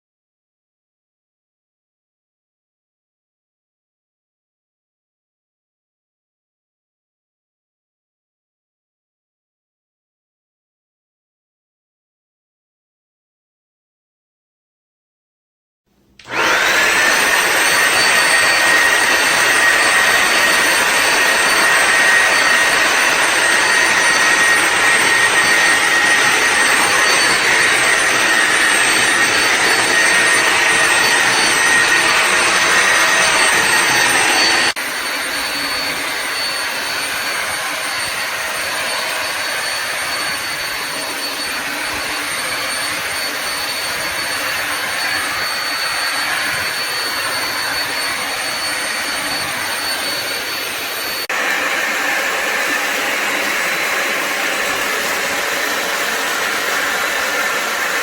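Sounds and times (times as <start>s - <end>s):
vacuum motor whining: 16.1s - 58.0s.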